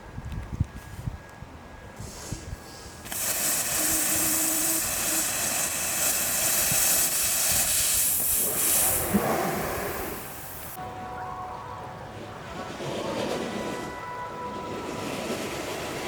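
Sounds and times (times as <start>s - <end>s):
wheels rolling on pavement: 2.2s - 10.8s, 12.0s - 16.0s
wind on microphone: 3.5s - 10.8s.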